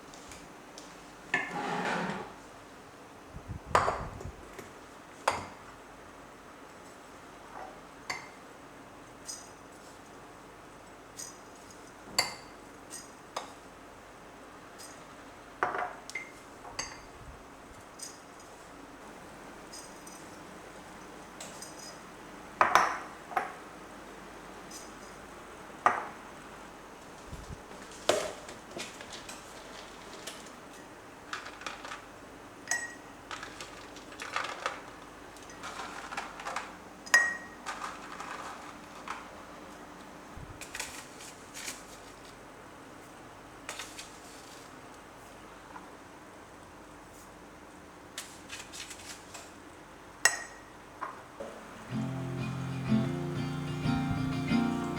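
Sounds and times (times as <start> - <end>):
light scraping and rustling: 1.4 - 2.5.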